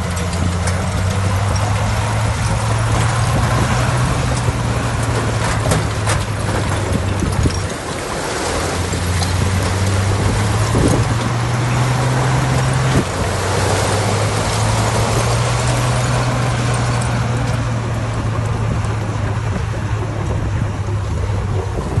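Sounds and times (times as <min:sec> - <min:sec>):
diesel engine humming: 0:00.0 - 0:22.0.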